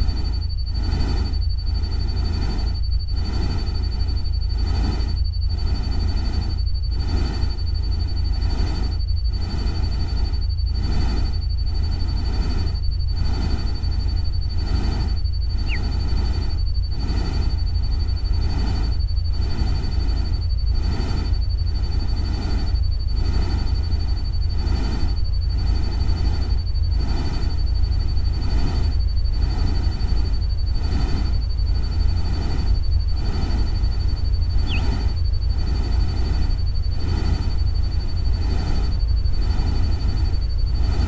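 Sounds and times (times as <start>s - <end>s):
steady low rumble: 0.0s - 41.0s
thin steady high tone: 0.0s - 41.0s
short falling chirp: 15.6s - 15.9s, 34.6s - 34.9s.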